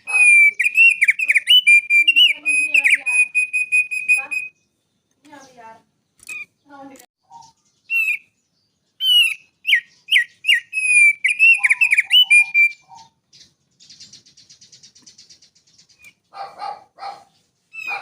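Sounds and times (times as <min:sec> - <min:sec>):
songbird whistling: 0:00.0 - 0:04.7, 0:07.2 - 0:16.2, 0:17.7 - 0:18.0
buzzy high bird trill: 0:00.0 - 0:18.0.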